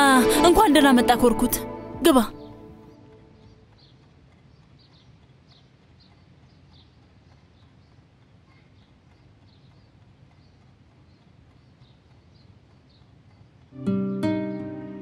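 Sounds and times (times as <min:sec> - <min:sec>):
small birds chirping: 0:03.3 - 0:15.0.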